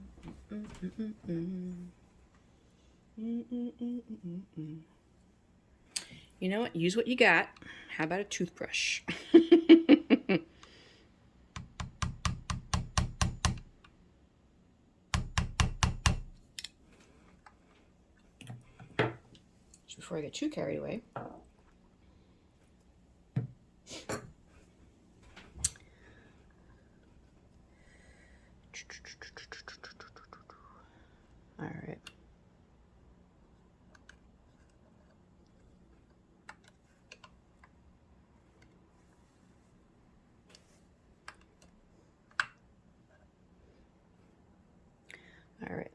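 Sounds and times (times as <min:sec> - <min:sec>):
hammer tapping lightly: 0:11.6 - 0:13.7
light clicks and taps of tools: 0:40.4 - 0:42.6.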